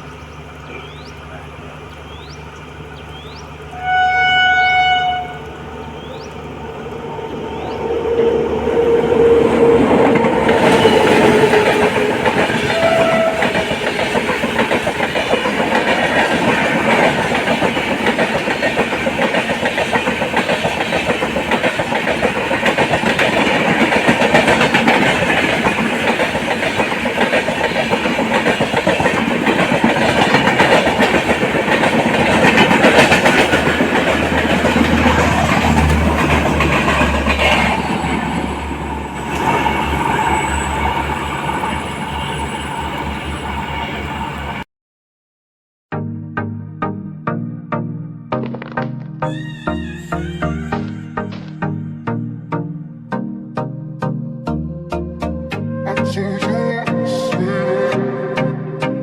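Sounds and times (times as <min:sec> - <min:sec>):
train coaches rushing on rails: 0:00.0 - 0:44.6
wheels clattering: 0:05.5 - 0:43.4.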